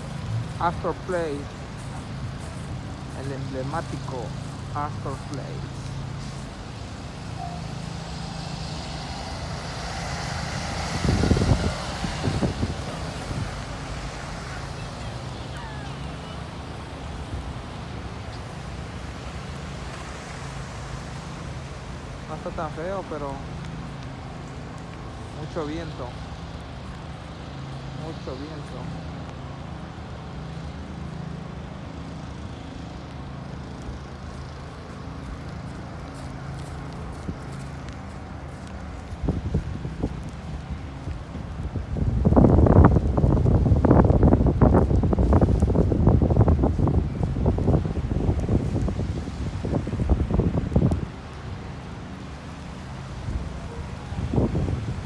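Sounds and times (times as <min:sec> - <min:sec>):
wind gusts buffeting microphone: 0:00.0 - 0:28.0, 0:33.7 - 0:55.0
street traffic: 0:00.0 - 0:55.0.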